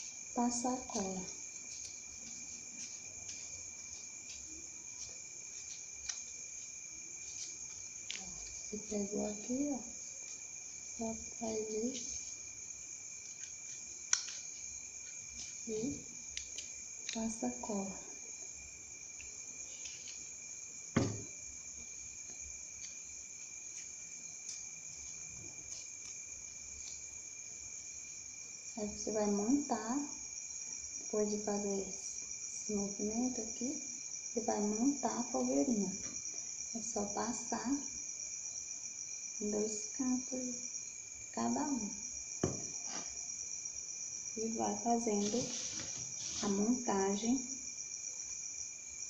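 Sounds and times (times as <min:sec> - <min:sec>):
high-pitched insect trilling: 0:00.0 - 0:49.0
sharp knock: 0:21.0 - 0:21.3, 0:42.4 - 0:43.0.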